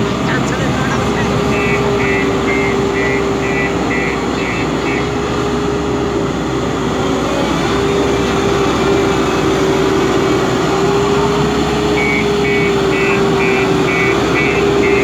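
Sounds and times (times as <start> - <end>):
diesel engine running: 0.0 - 15.0
reversing alarm beeping: 0.2 - 5.6, 11.4 - 15.0.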